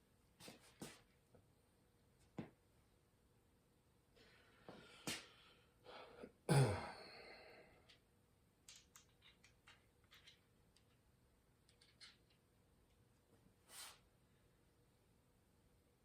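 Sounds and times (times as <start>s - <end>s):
metal parts clicking and knocking: 8.6s - 11.0s, 11.6s - 12.4s.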